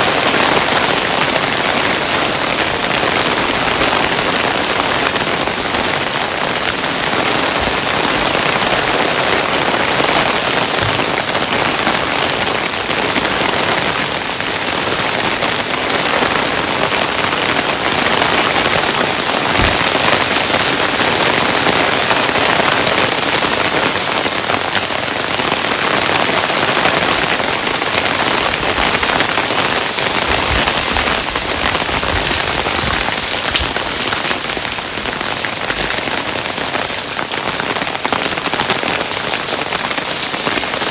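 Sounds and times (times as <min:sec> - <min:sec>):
hail falling on a surface: 0:00.0 - 0:40.9
deeper knocks: 0:10.7 - 0:11.4, 0:19.3 - 0:20.5, 0:28.4 - 0:34.4.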